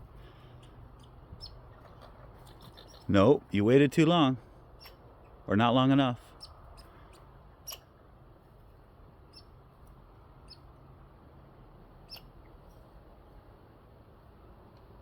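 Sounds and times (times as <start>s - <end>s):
squirrels squeaking: 0.2s - 4.0s, 4.7s - 8.0s, 9.2s - 9.6s, 10.4s - 10.8s, 11.9s - 13.0s.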